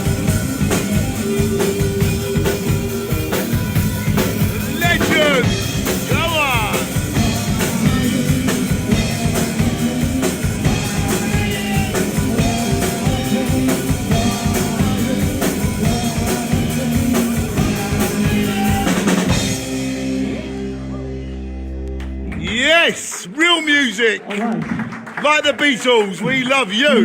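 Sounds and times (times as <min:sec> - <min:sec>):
drum kit: 0:00.0 - 0:21.0
live rock band playing: 0:00.0 - 0:23.1.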